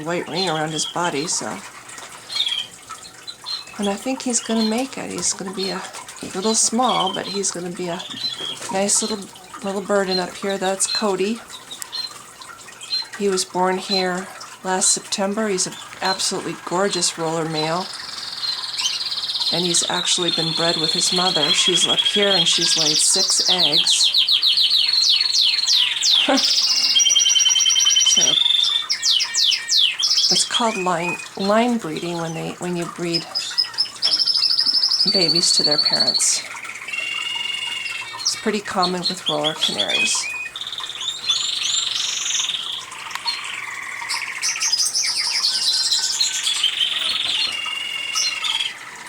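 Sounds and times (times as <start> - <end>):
canary singing: 0.0 - 49.0.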